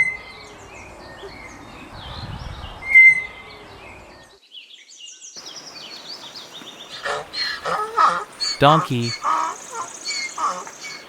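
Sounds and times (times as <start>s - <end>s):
small birds chirping: 4.4s - 11.0s.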